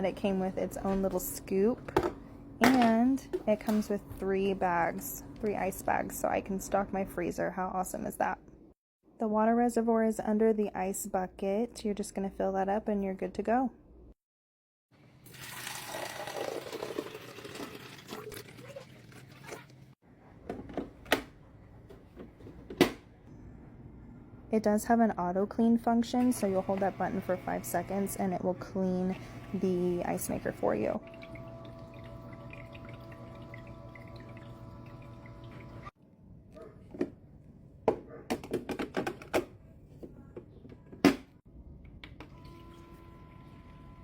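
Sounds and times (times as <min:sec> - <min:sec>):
water pouring and splashing: 0:15.2 - 0:20.0, 0:31.0 - 0:35.9
ice maker motor hum: 0:26.2 - 0:35.9, 0:42.3 - 0:44.0.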